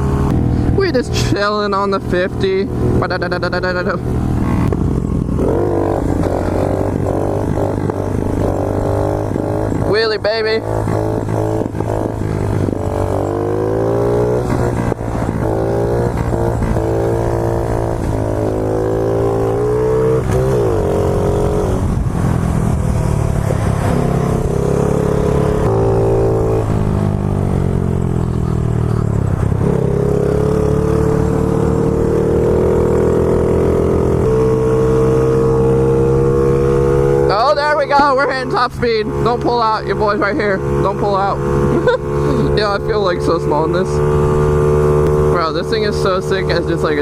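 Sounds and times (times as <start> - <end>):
small motorbike engine revving: 2.8 - 47.0.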